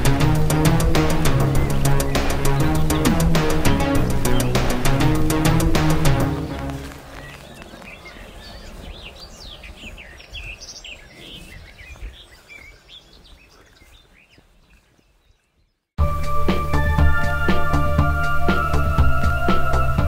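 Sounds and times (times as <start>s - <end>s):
background music: 0.0s - 7.2s, 16.0s - 20.0s
birds chirping: 0.0s - 20.0s.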